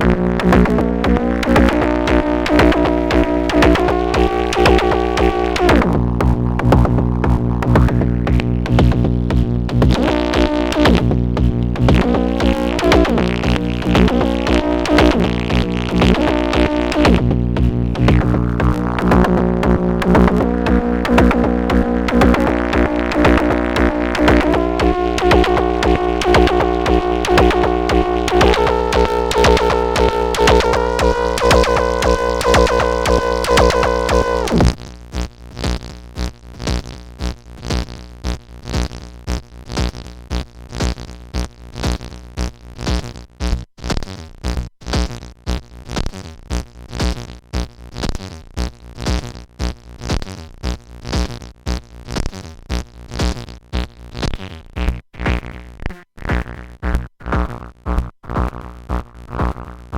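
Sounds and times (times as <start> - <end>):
synthesizer percussive hits: 0.0 - 34.8
synthesizer held tone: 19.0 - 34.6.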